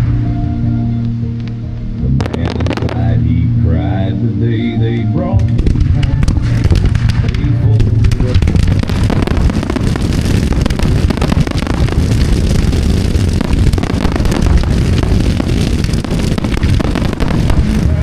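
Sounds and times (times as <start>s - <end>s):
fireworks booms and crackles: 2.2s - 3.2s, 5.4s - 18.0s.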